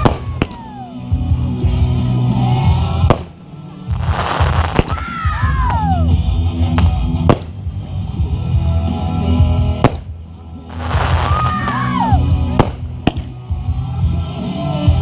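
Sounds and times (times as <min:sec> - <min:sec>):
firework cracks: 0:00.0 - 0:00.8, 0:03.0 - 0:05.2, 0:06.8 - 0:07.7, 0:09.8 - 0:13.4
falling whistling fireworks: 0:00.0 - 0:00.9, 0:03.9 - 0:05.2, 0:10.7 - 0:13.3
loud pop music: 0:00.0 - 0:15.0.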